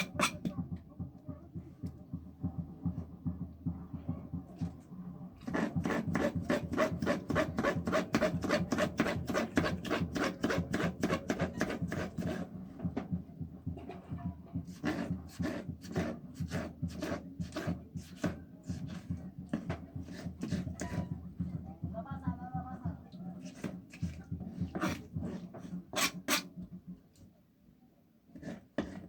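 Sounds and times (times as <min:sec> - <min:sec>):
rasping food preparation strokes: 0:05.4 - 0:12.6, 0:14.6 - 0:21.2, 0:23.4 - 0:26.6, 0:28.3 - 0:29.0.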